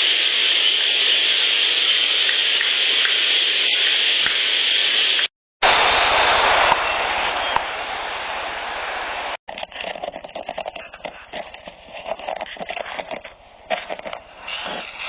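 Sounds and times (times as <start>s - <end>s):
loud steady hiss: 0.0s - 9.4s
dull hissing: 12.5s - 15.0s.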